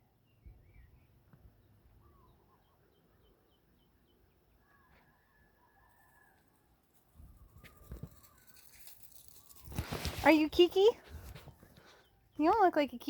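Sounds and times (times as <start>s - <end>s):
faint bird chirps: 0.0s - 6.4s.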